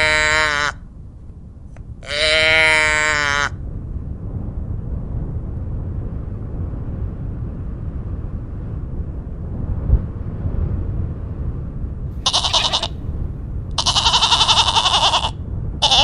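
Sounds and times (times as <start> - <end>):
sheep bleating: 0.0 - 0.7, 2.1 - 3.5, 12.2 - 13.0, 13.8 - 16.0
steady low rumble: 12.2 - 14.9.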